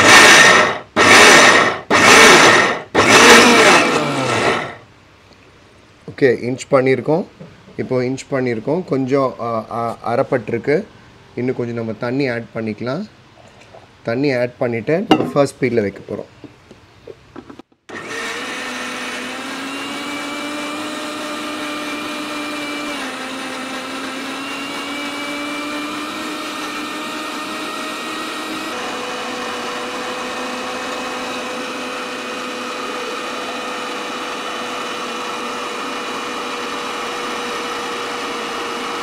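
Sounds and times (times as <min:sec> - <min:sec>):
mixer grinder motor hum: 0:00.0 - 0:04.8, 0:17.9 - 0:39.0.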